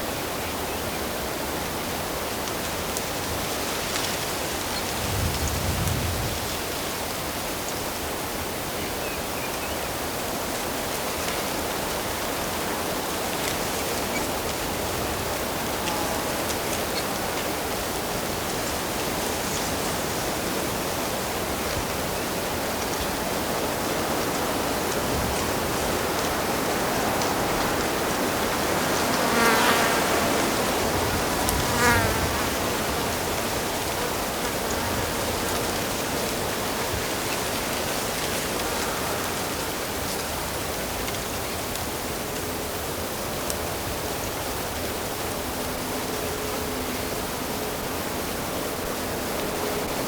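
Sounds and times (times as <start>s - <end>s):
insect buzzing past: 26.0s - 36.8s.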